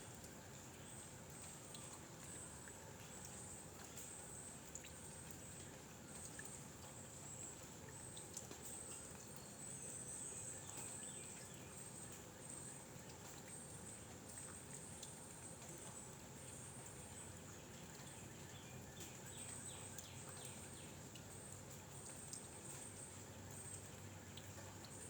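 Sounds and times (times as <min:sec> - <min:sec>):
small ticks: 0:01.3 - 0:10.0.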